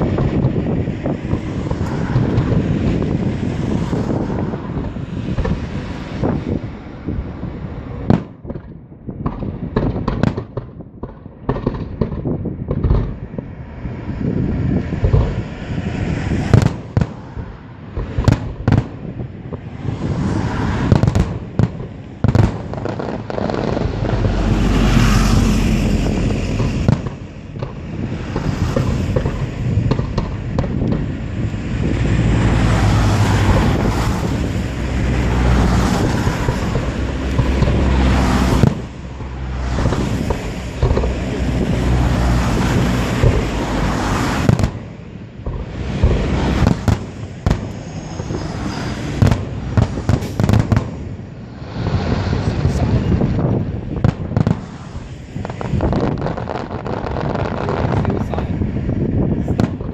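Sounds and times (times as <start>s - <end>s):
firework booms and crackling: 0.0s - 59.9s
firework shells bursting: 20.8s - 51.1s.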